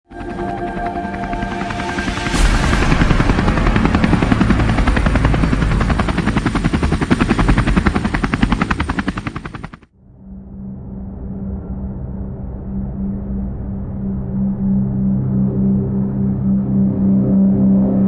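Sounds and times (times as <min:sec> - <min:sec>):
fast rotor-like chopping: 0:01.4 - 0:09.8.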